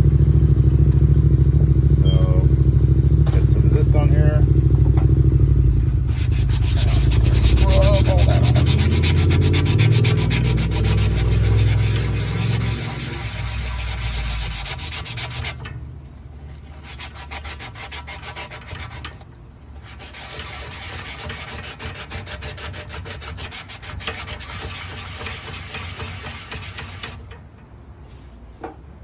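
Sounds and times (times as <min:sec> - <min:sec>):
scouring pad scrubbing rubber: 0:05.9 - 0:15.6, 0:16.5 - 0:19.1, 0:19.8 - 0:27.2.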